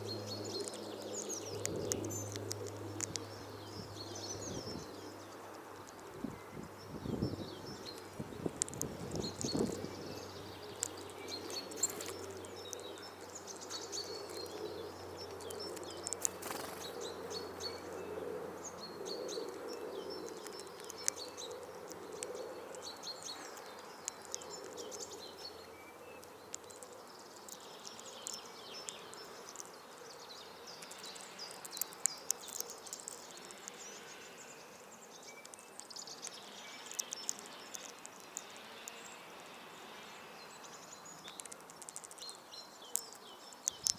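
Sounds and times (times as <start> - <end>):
songbirds chirping: 0.0 - 43.9
sharp taps and clicks: 41.2 - 43.9.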